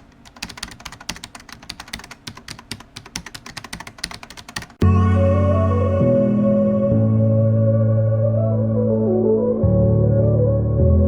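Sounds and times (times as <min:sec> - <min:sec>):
computer keyboard typing: 0:00.0 - 0:04.8
sustained keyboard chords: 0:00.3 - 0:11.0.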